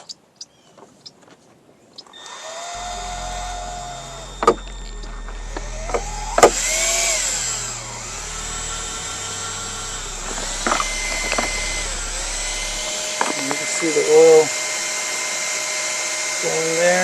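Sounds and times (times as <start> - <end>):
pump motor whining: 2.2 - 17.0
low hum: 2.7 - 15.2.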